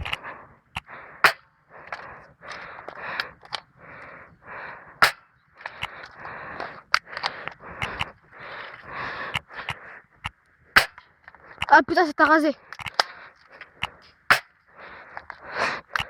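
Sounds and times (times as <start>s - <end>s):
airsoft gun shots: 5.0s - 5.2s, 10.8s - 11.0s, 14.3s - 14.6s.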